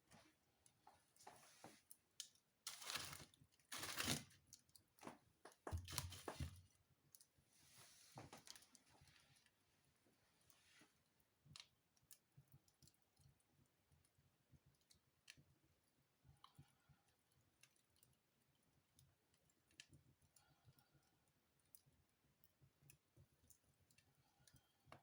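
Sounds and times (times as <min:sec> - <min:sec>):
wood fire crackling: 0:00.0 - 0:09.6.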